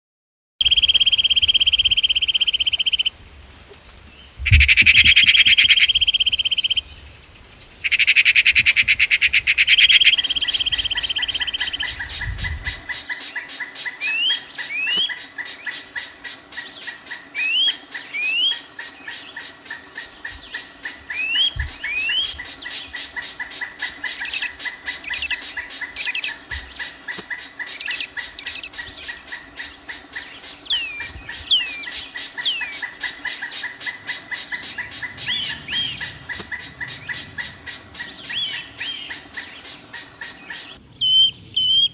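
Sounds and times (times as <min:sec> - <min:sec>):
bird chirps: 0:09.7 - 0:41.9
fast even pulsing: 0:10.0 - 0:40.8.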